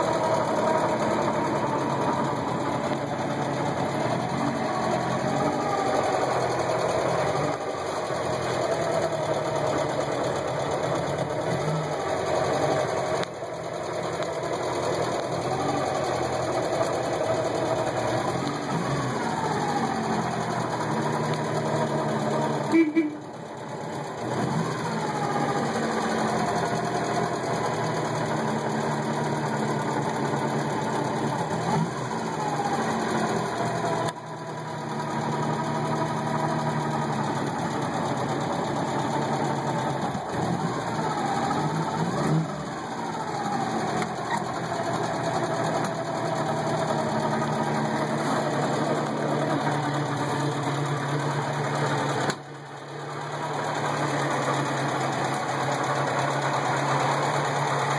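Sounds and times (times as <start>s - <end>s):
car engine running: 0.0s - 57.9s.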